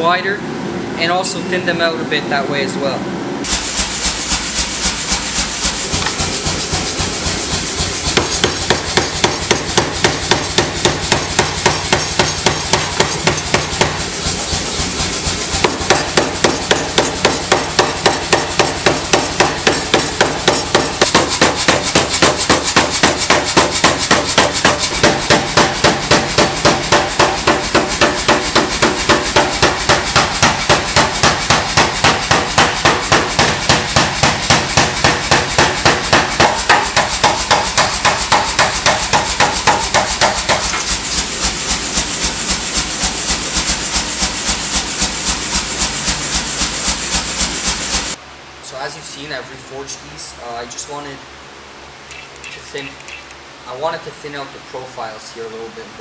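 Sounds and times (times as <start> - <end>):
hammer blows on hot steel: 3.4 - 44.3.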